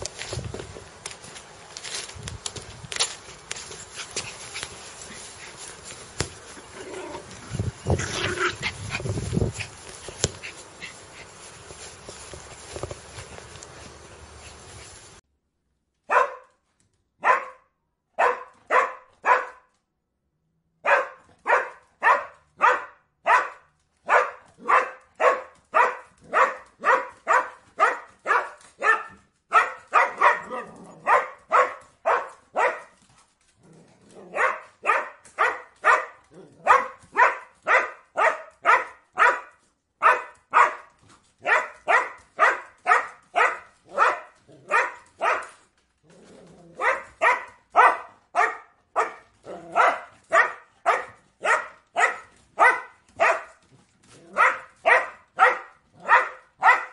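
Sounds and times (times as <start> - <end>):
dog barking repetitively: 16.1 - 16.6, 17.2 - 19.7, 20.8 - 33.0, 34.3 - 45.6, 46.8 - 53.6, 54.3 - 56.9.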